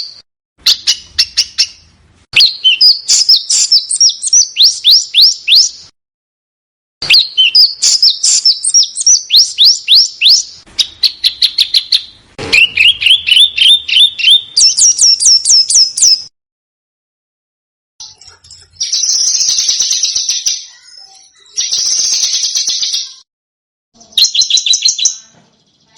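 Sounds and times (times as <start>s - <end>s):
songbird chirping: 0.0s - 5.9s, 7.0s - 16.3s, 18.0s - 23.2s.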